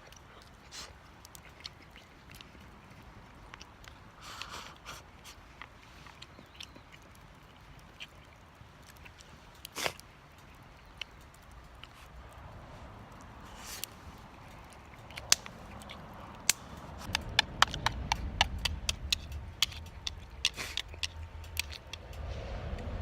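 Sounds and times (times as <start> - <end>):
low rumble: 15.5 - 23.0.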